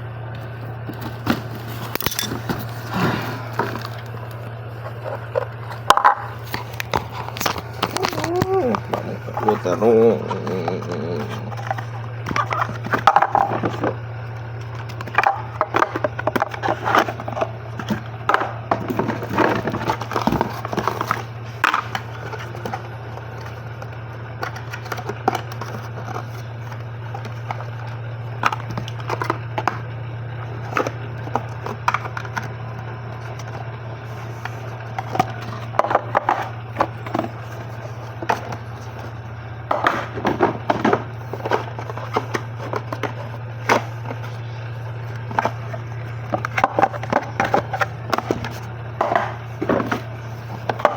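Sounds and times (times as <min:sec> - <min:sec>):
steady low hum: 0:00.0 - 0:50.9
packaging crinkling and rustling: 0:00.9 - 0:18.1.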